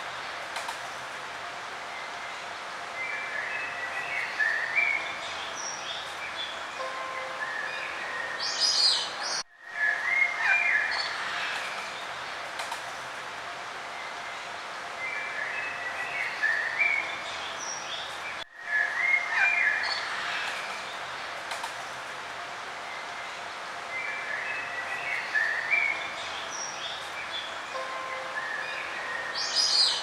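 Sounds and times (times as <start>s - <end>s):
background hiss: 0.0s - 30.0s
birds chirping and singing: 3.1s - 11.7s, 24.0s - 30.0s.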